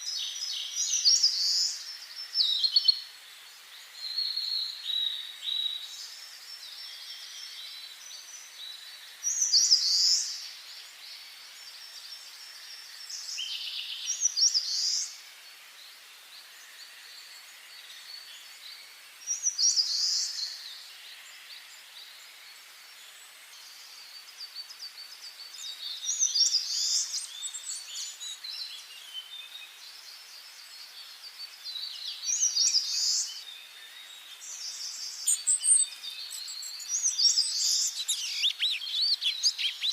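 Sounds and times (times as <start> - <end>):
songbirds singing: 0.0 - 39.9
bird chirps and calls: 31.8 - 39.9.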